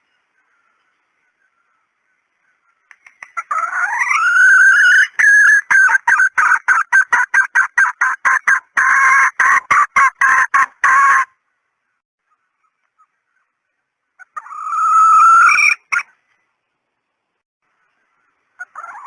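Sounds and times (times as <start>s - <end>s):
hen clucking calls: 0.4s - 11.4s, 12.2s - 16.2s, 17.8s - 19.0s.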